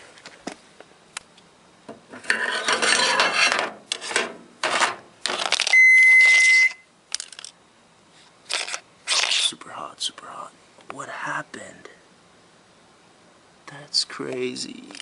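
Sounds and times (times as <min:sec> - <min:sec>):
microwave beep: 0:05.7 - 0:06.9.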